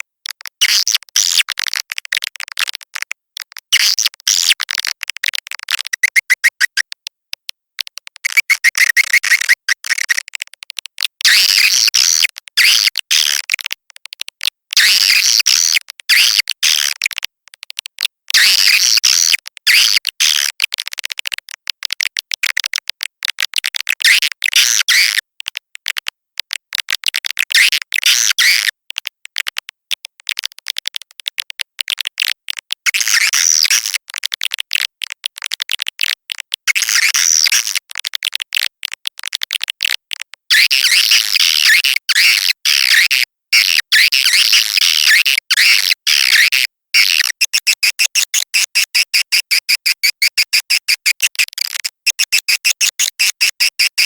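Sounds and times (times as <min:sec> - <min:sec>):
swiftlets chirping: 0:05.9 - 0:06.8, 0:08.2 - 0:10.2.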